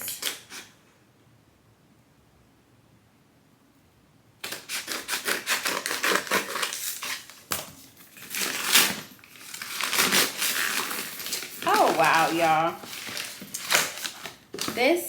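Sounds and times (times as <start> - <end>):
packaging crinkling and tearing: 4.4 - 14.8.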